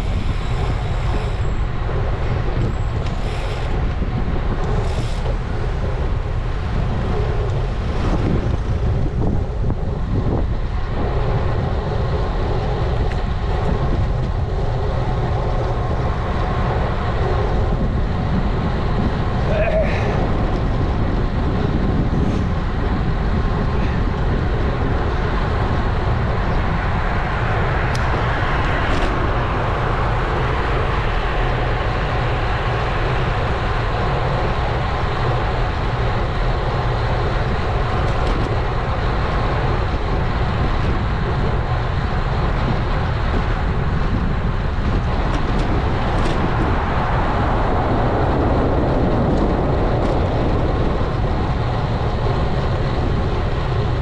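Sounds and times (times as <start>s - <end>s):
tyre and road noise: 0.0s - 54.0s
wind rushing over microphone: 0.0s - 54.0s.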